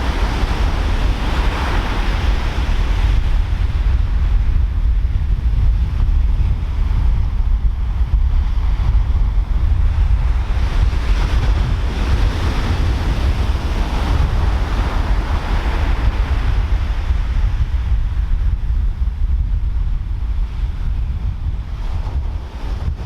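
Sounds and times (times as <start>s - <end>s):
ocean wave breaking: 0.0s - 4.1s
wind buffeting microphone: 0.0s - 23.0s.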